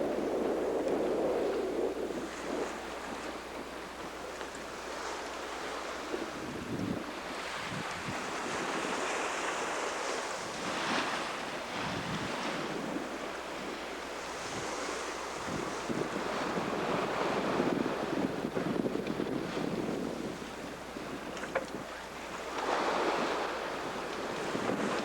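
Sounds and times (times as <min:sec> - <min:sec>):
sea rushing past a yacht: 0:00.0 - 0:25.0
wind buffeting microphone: 0:00.0 - 0:25.0.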